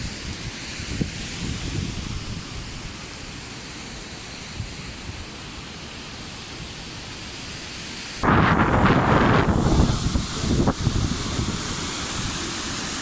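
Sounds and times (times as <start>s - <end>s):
wind buffeting microphone: 0.0s - 3.0s, 8.2s - 13.0s
water pouring down weirs: 0.0s - 13.0s.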